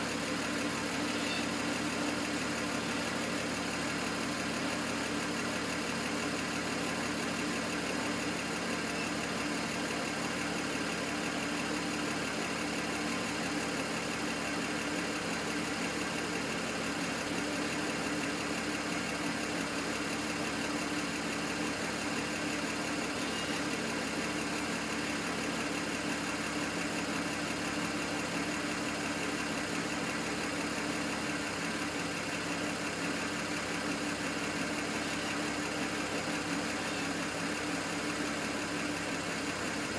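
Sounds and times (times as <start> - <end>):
car engine idling with misfire: 0.0 - 39.9.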